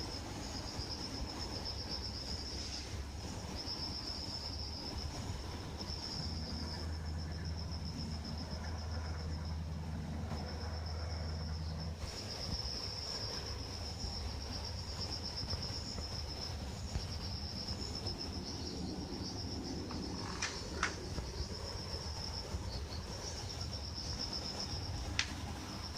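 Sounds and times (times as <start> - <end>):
air conditioner unit humming: 0.0 - 25.9
insect chirring: 0.0 - 25.9
sharp ticks: 25.1 - 25.4.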